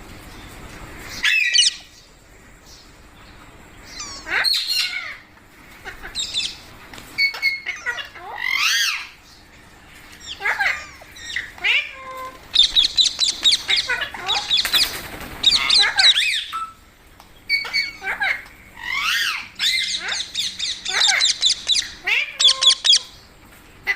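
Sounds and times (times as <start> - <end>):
parrot squawking: 1.2 - 1.9, 3.9 - 9.2, 10.2 - 16.8, 17.5 - 23.2.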